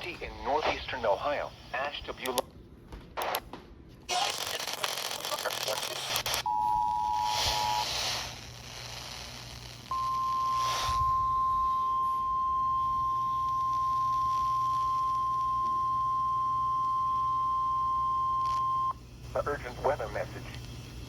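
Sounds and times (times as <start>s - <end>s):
radio hiss: 0.0s - 2.5s, 3.2s - 3.4s, 4.1s - 21.0s
single-tone warning alarm: 6.5s - 8.0s, 9.9s - 18.9s
two-tone attention signal: 9.9s - 18.9s.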